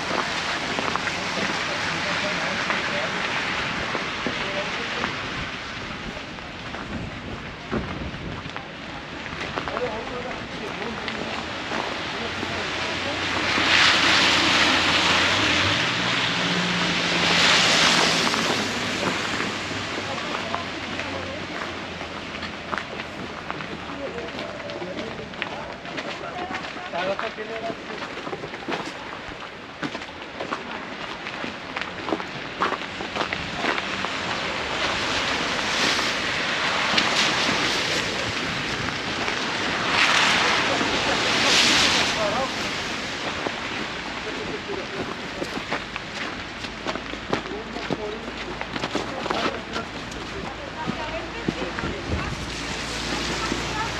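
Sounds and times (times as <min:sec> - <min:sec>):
traffic rushing past: 0:00.0 - 0:06.6, 0:09.9 - 0:27.9, 0:31.6 - 0:53.9
blizzard wind gusting: 0:32.2 - 0:46.6.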